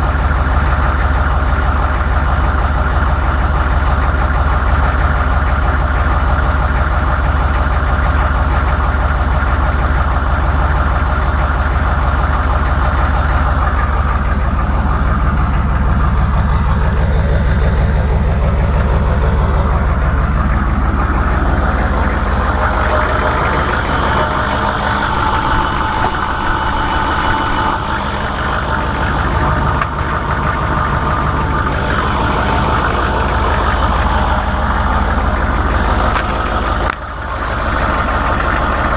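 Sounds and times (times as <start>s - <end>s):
engine idling with knocking: 0.0s - 38.9s.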